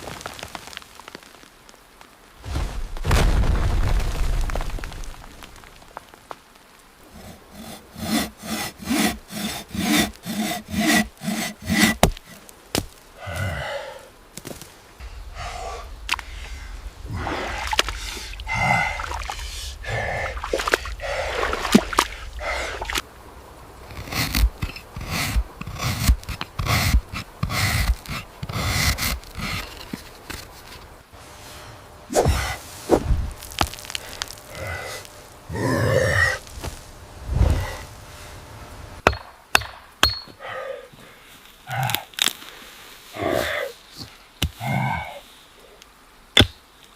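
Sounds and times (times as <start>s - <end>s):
rhythmic strokes on wood: 7.1s - 12.5s, 23.9s - 31.0s.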